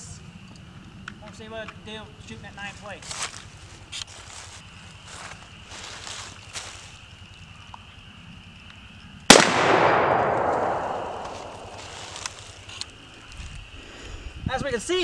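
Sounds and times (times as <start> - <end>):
rifle shot with echo: 9.3 - 12.4.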